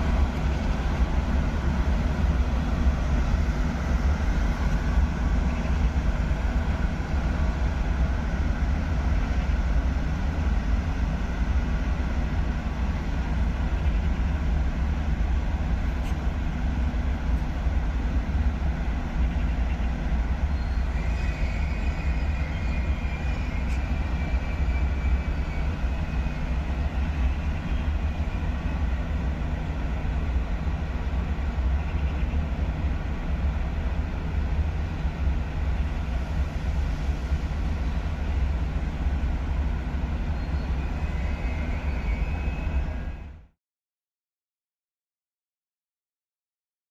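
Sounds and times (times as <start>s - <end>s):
train rumbling: 0.0s - 43.6s
faint high-pitched squeal: 20.4s - 28.8s, 40.2s - 43.5s.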